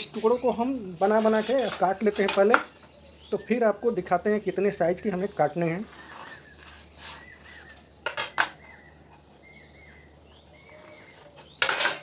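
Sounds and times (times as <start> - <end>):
faint bird chirps: 6.0 - 11.8.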